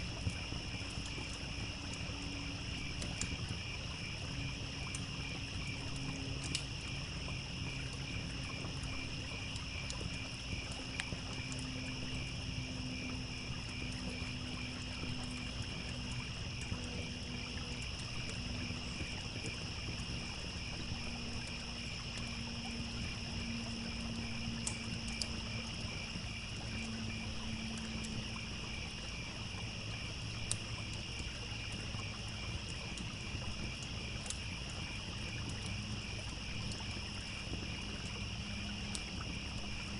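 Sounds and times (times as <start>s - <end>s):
campfire crackling and popping: 0.0s - 39.9s
crickets chirping: 0.0s - 39.9s
trickling stream: 0.0s - 39.9s.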